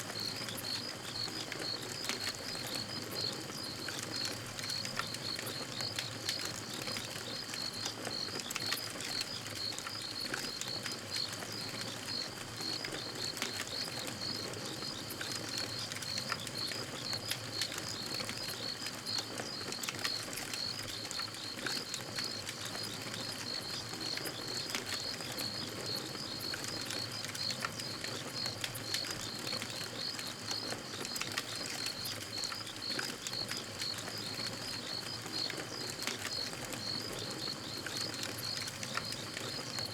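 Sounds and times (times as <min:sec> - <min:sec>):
campfire crackling and popping: 0:00.1 - 0:39.9.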